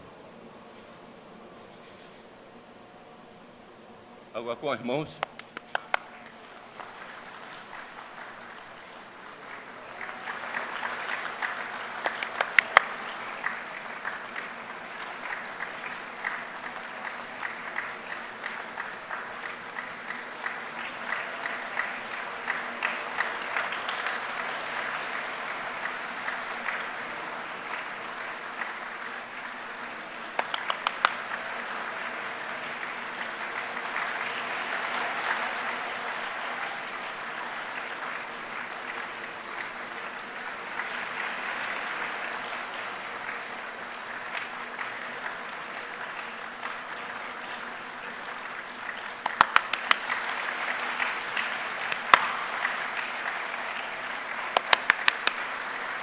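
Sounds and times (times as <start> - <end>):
hands making rain-like hiss: 5.3 - 7.6, 10.0 - 17.9, 19.5 - 27.8, 29.4 - 32.4, 51.8 - 53.0.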